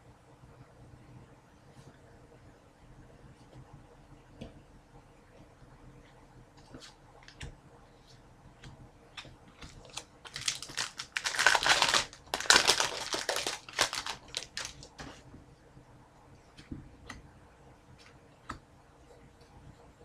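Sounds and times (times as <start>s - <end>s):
foil wrapper crinkling and tearing: 9.8s - 14.9s.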